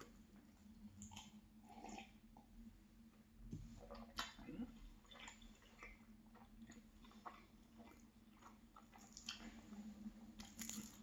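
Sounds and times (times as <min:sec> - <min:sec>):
faint low hum: 0:00.0 - 0:11.0
chewing pastry: 0:03.8 - 0:11.0.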